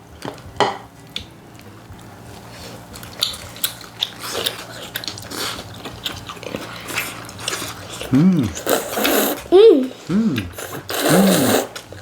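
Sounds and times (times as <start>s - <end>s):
person biting and chewing food: 2.8s - 9.5s.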